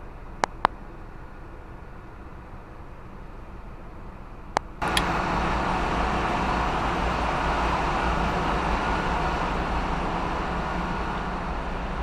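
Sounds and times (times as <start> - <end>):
click: 4.6 - 5.1
engine room machinery din: 4.6 - 12.0.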